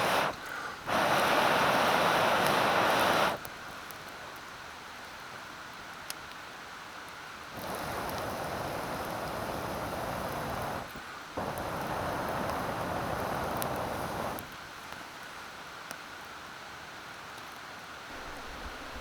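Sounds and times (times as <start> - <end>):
long hissing rushes: 0.0 - 3.5, 7.6 - 14.5, 18.1 - 19.0
steady background hiss: 0.0 - 19.0.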